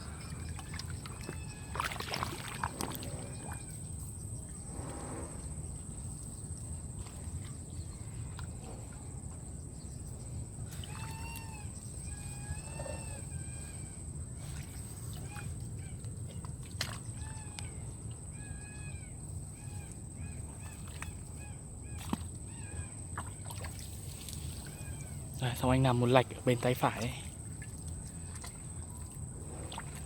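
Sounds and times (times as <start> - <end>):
steady low rush: 4.5 - 6.0.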